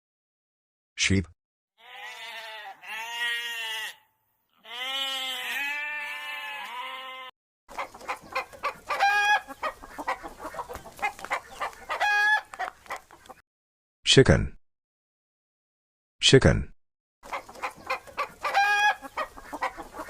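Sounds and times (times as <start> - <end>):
sheep bleating: 1.8 - 7.4
chickens clucking: 7.7 - 13.4, 17.2 - 20.0.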